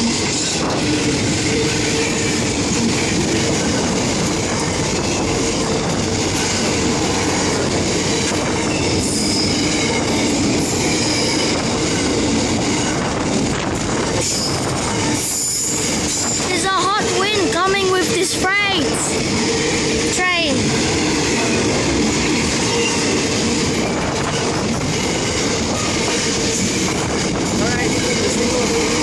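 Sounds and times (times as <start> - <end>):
train wheels rumbling on rails: 0.0 - 29.0
high-pitched wheel squeal: 8.5 - 11.6.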